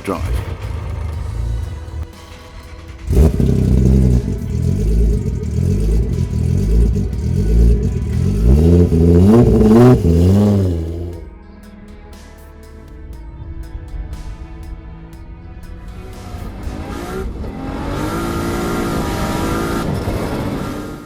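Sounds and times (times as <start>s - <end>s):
car engine revving hard: 0.0s - 2.1s, 3.0s - 11.3s, 16.2s - 21.0s.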